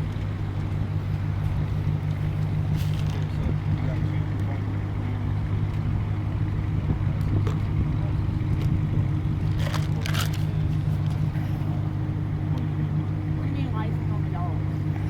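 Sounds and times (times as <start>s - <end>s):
car engine idling: 0.0s - 15.0s
brief rustle: 9.5s - 11.3s.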